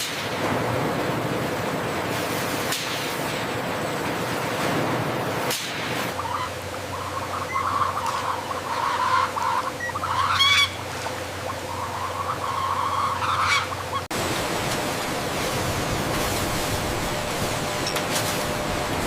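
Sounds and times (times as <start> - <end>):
chickens squawking: 6.1 - 14.1
steady hum: 13.0 - 19.0
steady machine noise: 13.9 - 19.0.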